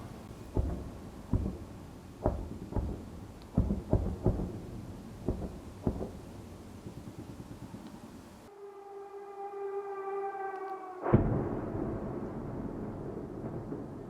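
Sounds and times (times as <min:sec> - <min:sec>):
distant echoing booms: 0:00.0 - 0:08.2, 0:11.0 - 0:14.0.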